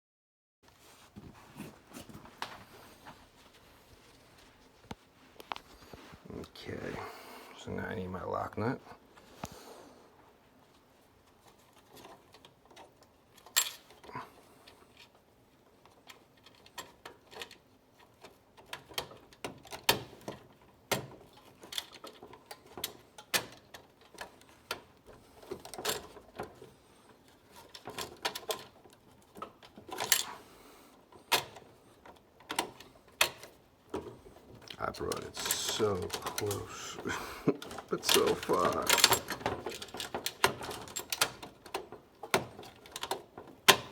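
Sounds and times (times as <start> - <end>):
metal parts and tools clinking: 34.0 - 43.9.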